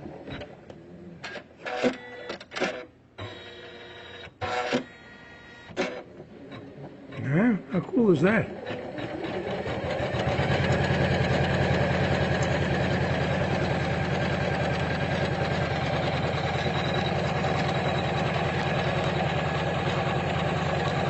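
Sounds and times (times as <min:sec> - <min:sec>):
embroidery machine stitching: 0:05.7 - 0:07.5, 0:08.3 - 0:21.0.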